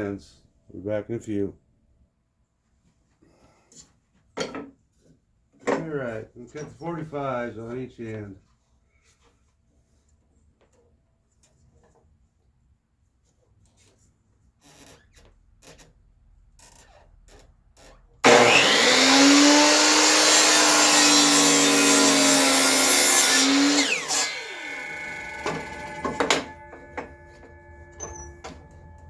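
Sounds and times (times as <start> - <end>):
electric miter saw cutting: 18.2 - 29.0.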